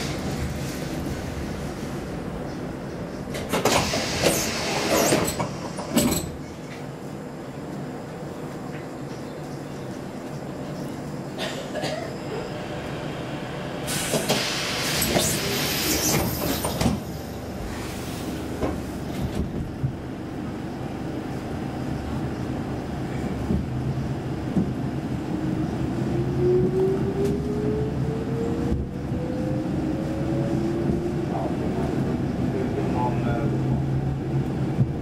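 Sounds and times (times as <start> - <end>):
train carriage rumbling: 0.0 - 35.0
train door hiss: 3.3 - 6.3, 13.8 - 19.3.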